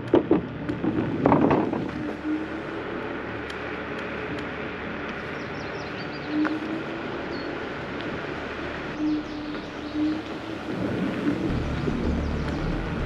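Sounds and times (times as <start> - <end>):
electric motor hum: 0.0 - 13.0
tyre and wind rumble: 0.0 - 13.0
faint bird chirps: 5.3 - 7.6, 8.9 - 12.7.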